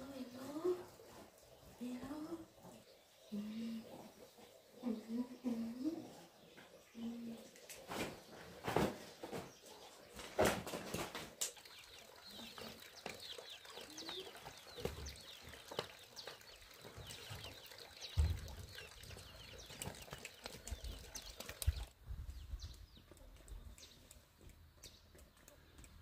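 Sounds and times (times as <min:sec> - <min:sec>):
birds chirping: 0:00.0 - 0:26.0
knocks and low thumps: 0:18.1 - 0:18.7.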